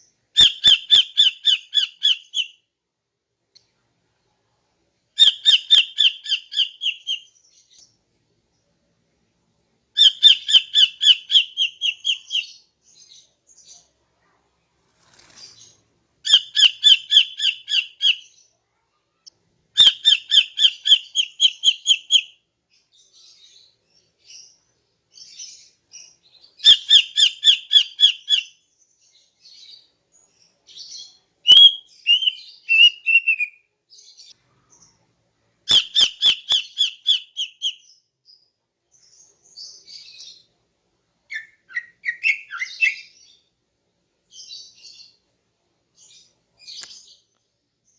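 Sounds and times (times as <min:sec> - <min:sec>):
bird squeaky twitter: 0:31.5 - 0:33.6, 0:35.7 - 0:37.8, 0:41.3 - 0:43.1.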